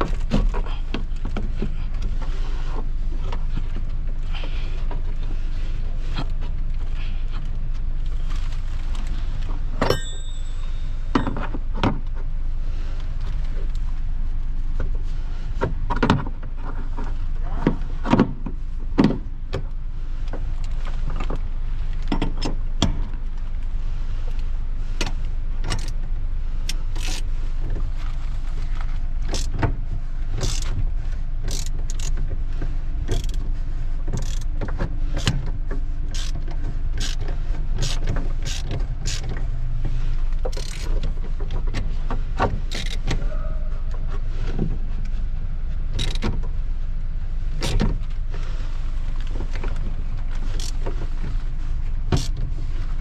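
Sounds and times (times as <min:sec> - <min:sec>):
steady low hum: 0:00.0 - 0:53.0
clicks and knocks of hand tools: 0:31.5 - 0:32.2, 0:37.0 - 0:39.4, 0:40.5 - 0:41.1.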